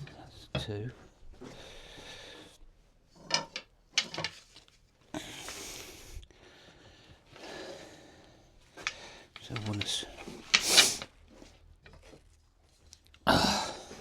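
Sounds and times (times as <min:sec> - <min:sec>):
wooden rods scraping on wood: 0:03.2 - 0:04.7, 0:08.8 - 0:12.3.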